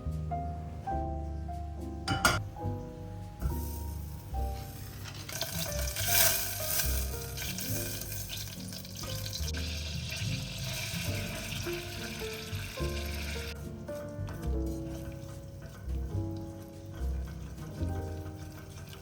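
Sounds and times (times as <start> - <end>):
soft background music: 0.0 - 19.0
food sizzling in a frying pan: 3.5 - 13.6.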